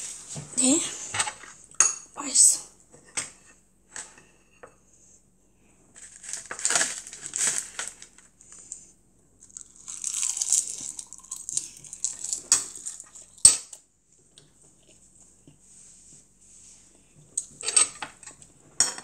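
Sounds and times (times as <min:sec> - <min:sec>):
child chewing crunchy food: 0:09.4 - 0:13.5, 0:14.5 - 0:15.5.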